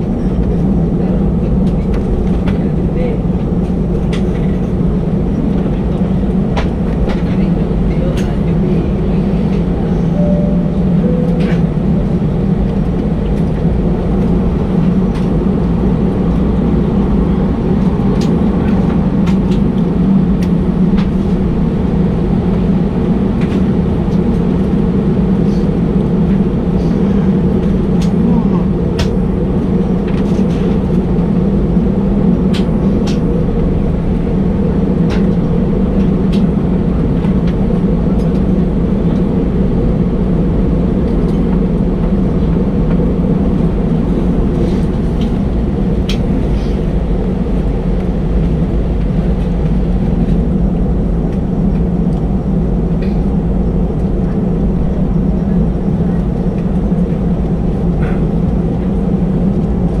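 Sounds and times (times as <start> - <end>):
aircraft engines humming: 0.0 - 60.0.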